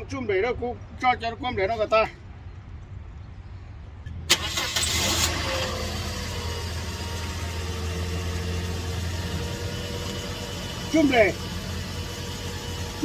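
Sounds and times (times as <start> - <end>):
car engine starting and idling: 4.2 - 13.0.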